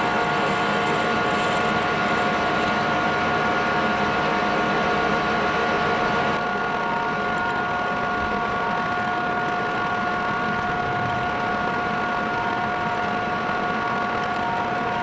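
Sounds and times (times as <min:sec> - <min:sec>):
metal lathe whining: 0:00.0 - 0:03.5.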